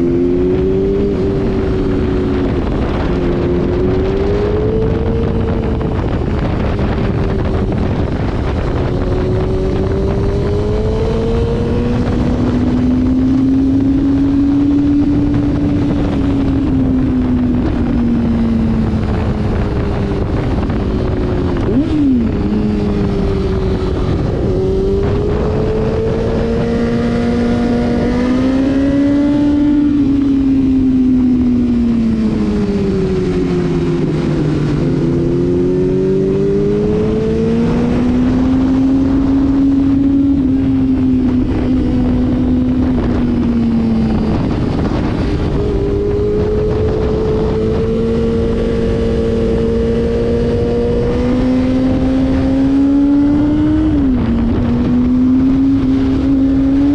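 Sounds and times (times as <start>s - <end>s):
motorcycle engine revving: 0.0s - 56.9s
wind noise: 0.0s - 56.9s.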